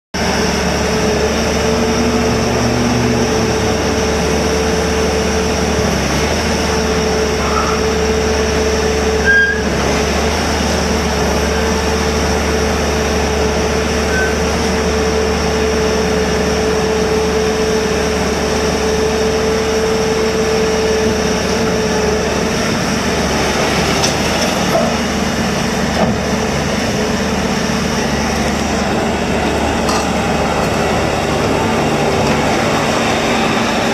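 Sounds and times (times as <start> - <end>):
diesel engine running: 0.2 - 33.9.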